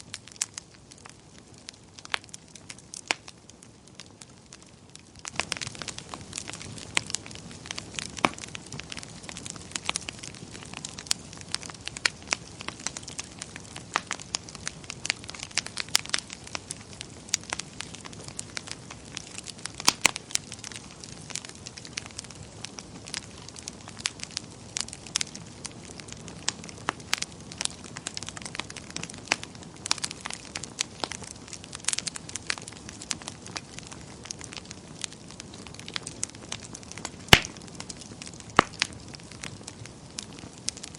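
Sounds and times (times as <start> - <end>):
wood fire crackling: 0.0 - 40.9
sharp pops and snaps: 37.3 - 39.0.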